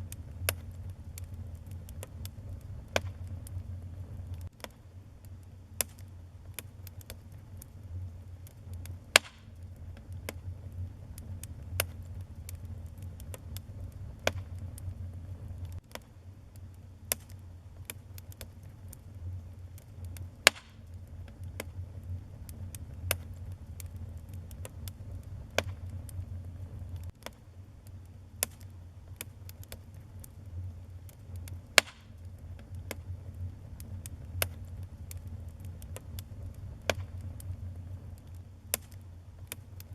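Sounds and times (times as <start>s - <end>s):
loud fire pops: 0.0s - 16.1s, 17.0s - 39.9s
fire crackling: 0.0s - 39.9s
fire rumbling: 0.0s - 39.9s.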